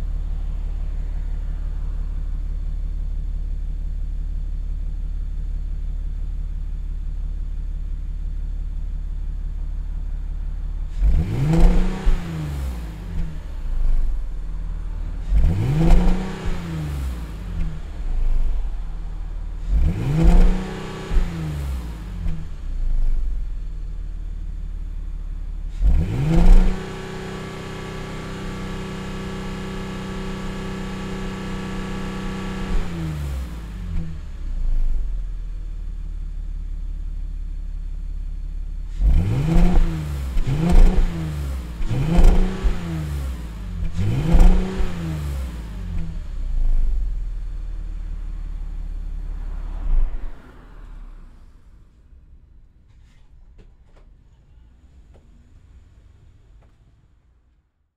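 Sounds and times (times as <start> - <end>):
car engine revving: 9.2 - 36.2, 38.7 - 52.6.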